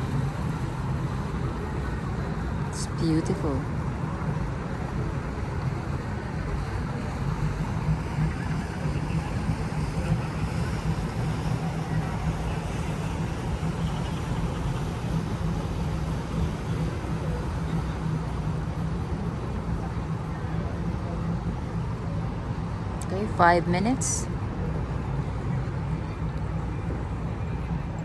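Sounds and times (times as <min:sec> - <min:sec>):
city engine hum and rumble: 0:00.0 - 0:28.0.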